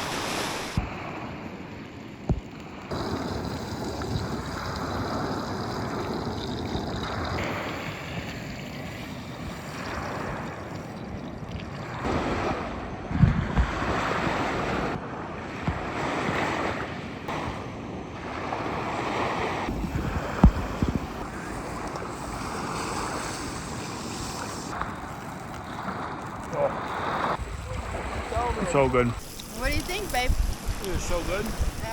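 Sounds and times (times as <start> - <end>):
small waves washing on shore: 0.0 - 31.9
wind blowing across microphone: 2.3 - 25.1, 25.9 - 31.9
wind thumps on microphone: 12.1 - 15.0, 19.7 - 22.8, 27.1 - 31.9.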